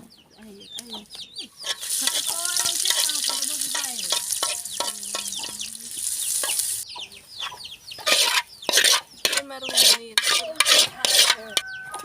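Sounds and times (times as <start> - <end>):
chickens clucking: 0.0 - 12.0
chicks peeping: 0.0 - 12.0
food sizzling in a pan: 1.6 - 6.8.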